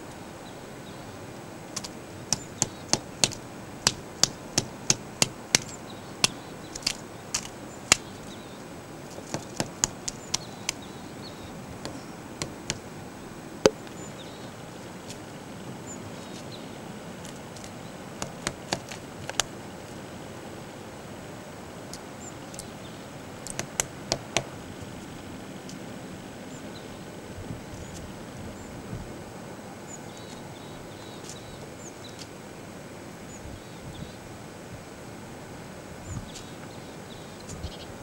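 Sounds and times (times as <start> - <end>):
woodpecker pecking wood: 1.7 - 14.0, 17.3 - 19.5, 23.4 - 24.7.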